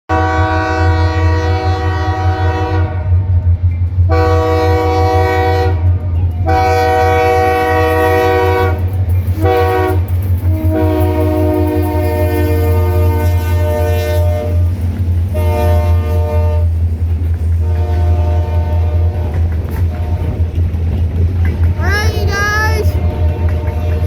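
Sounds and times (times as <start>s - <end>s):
locomotive air horn blasts: 0.1s - 3.2s, 4.1s - 14.6s, 15.3s - 16.7s, 17.6s - 20.4s, 22.9s - 24.0s.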